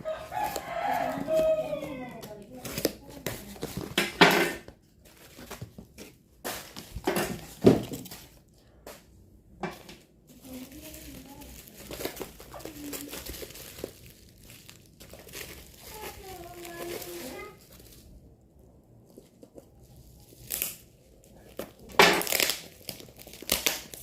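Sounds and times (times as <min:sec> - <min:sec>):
plastic packaging crinkling: 0:00.0 - 0:04.2, 0:10.3 - 0:18.4, 0:19.1 - 0:24.0.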